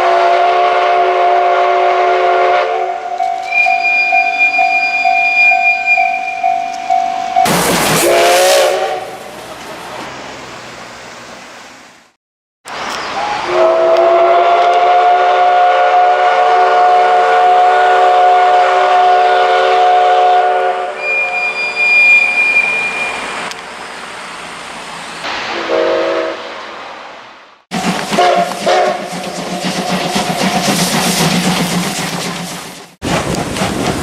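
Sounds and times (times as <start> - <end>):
steam locomotive whistle blast: 0.0 - 9.3, 13.2 - 23.5, 25.5 - 26.6, 28.0 - 29.2
thin high squeal: 3.2 - 7.4, 21.0 - 23.9.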